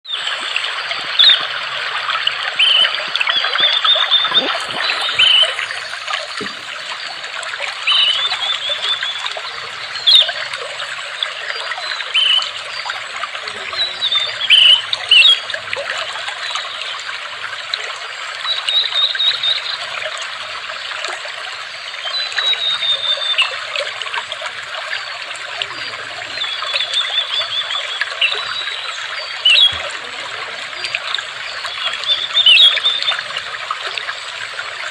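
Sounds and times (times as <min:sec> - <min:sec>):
water trickling: 0:00.1 - 0:34.9
birds chirping and trilling: 0:03.7 - 0:10.5.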